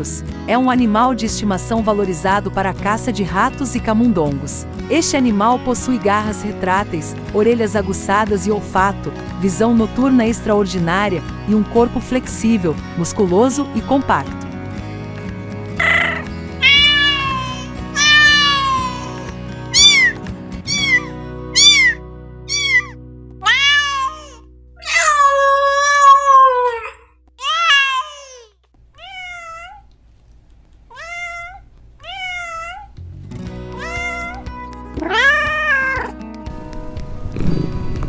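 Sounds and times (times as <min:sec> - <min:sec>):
background music: 0:00.0 - 0:26.8, 0:33.0 - 0:38.0
cat meowing: 0:15.8 - 0:29.9, 0:30.9 - 0:33.0, 0:33.7 - 0:36.2.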